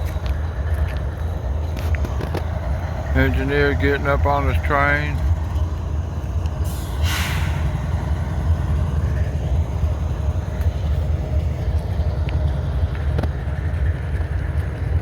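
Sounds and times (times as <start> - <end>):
diesel locomotive idling: 0.0 - 15.0
air hiss: 6.6 - 7.8.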